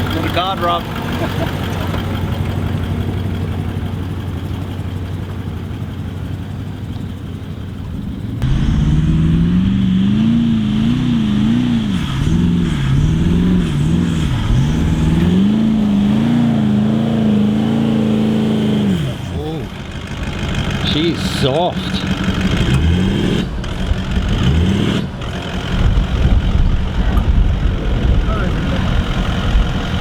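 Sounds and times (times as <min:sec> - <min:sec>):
engine revving: 0:08.4 - 0:30.0.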